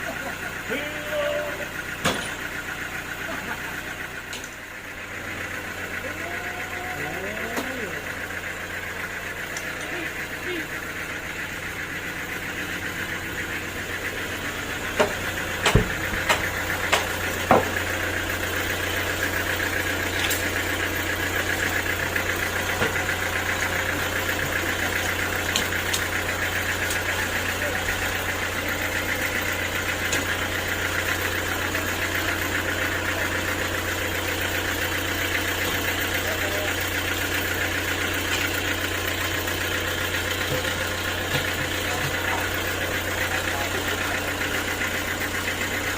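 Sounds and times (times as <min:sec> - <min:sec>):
sawmill machinery humming: 0:00.0 - 0:45.9
sharp knocks: 0:15.0 - 0:17.7.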